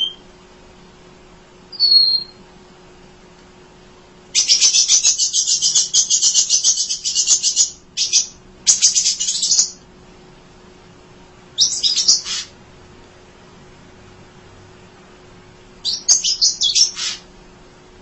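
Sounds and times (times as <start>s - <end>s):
songbird chattering: 1.8s - 2.4s, 4.4s - 9.8s, 11.6s - 12.5s, 15.8s - 17.2s.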